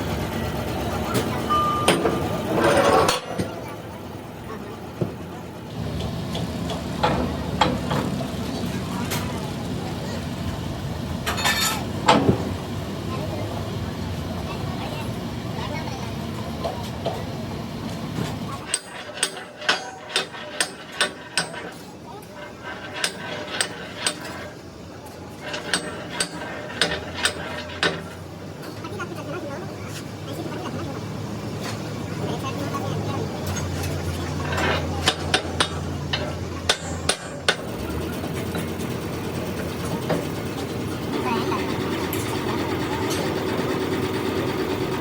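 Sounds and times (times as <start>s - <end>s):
hammer striking metal: 18.7s - 21.8s, 25.4s - 28.2s, 34.5s - 37.7s.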